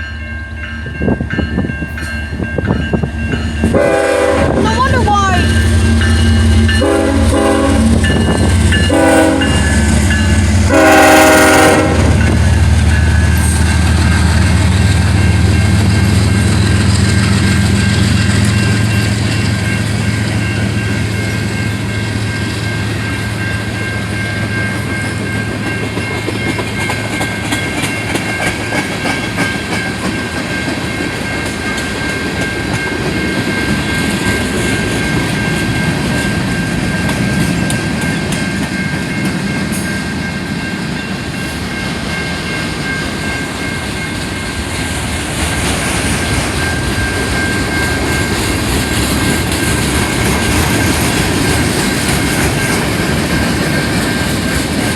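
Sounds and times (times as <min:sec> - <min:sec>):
locomotive rumble: 0:00.0 - 0:54.9
train wheels clattering on rails: 0:00.8 - 0:54.9
train horn blasts: 0:03.6 - 0:08.2, 0:08.8 - 0:09.9, 0:10.6 - 0:12.4.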